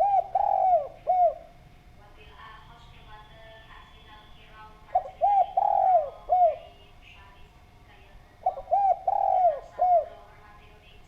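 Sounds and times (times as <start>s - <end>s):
dove cooing: 0.0s - 1.6s, 4.9s - 6.8s, 8.4s - 10.4s.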